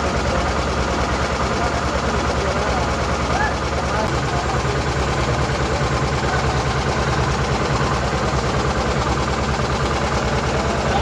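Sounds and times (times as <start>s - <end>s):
faint voices: 0.0s - 9.2s, 10.0s - 11.0s.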